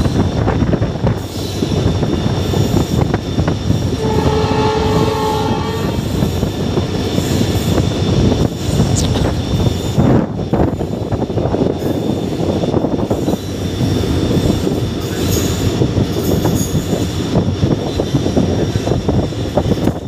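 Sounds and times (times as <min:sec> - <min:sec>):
train wheels rumbling on track: 0:00.0 - 0:20.0.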